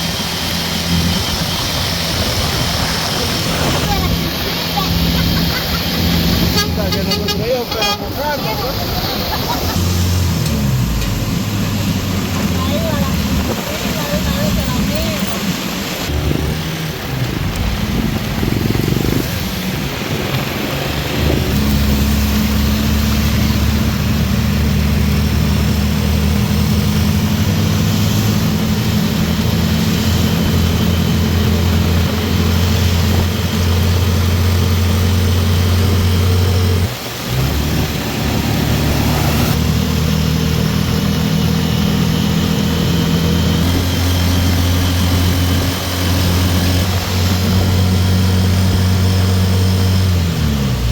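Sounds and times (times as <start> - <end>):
heavy rain hissing: 0.0 - 50.9
motor engine running: 8.7 - 37.0.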